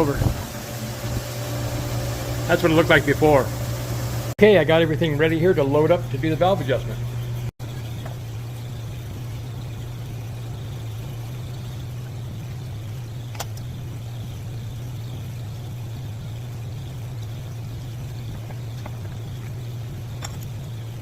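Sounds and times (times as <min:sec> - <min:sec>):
air conditioner humming: 0:00.0 - 0:13.4.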